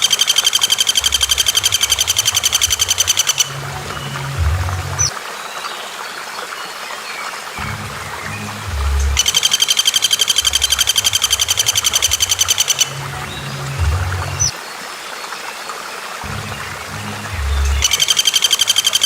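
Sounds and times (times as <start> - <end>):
songbird trill: 0.0 - 19.0
low rumble: 1.1 - 5.1, 10.5 - 14.5.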